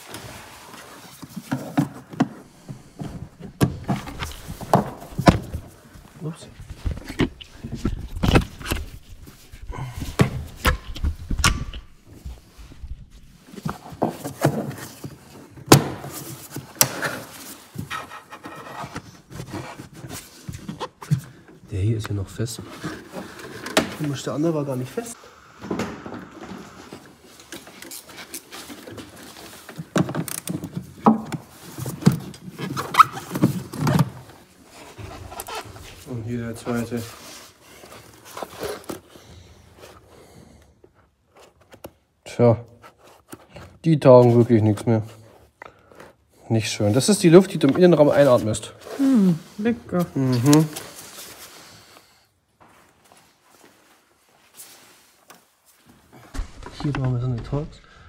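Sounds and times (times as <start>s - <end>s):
plastic parts scraping and squeaking: 0.0s - 12.2s, 16.4s - 25.1s, 26.6s - 40.1s.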